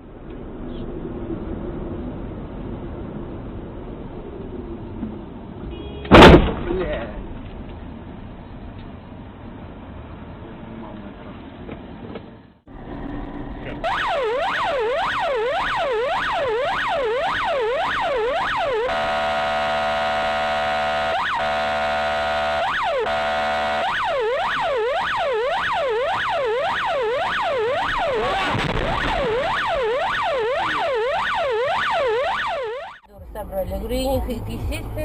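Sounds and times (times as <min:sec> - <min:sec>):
emergency vehicle siren: 0:13.3 - 0:33.1.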